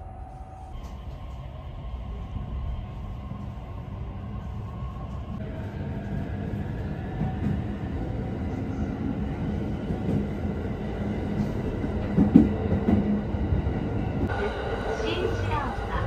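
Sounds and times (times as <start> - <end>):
train wheels running on rails: 5.0 - 16.0.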